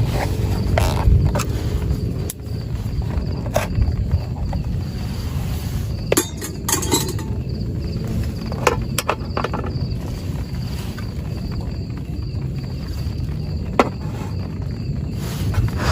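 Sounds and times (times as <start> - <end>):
pulsing insect chirp: 0.0 - 15.9
steady low rumble: 0.0 - 15.9
clinks and knocks: 6.1 - 7.5, 8.5 - 9.8.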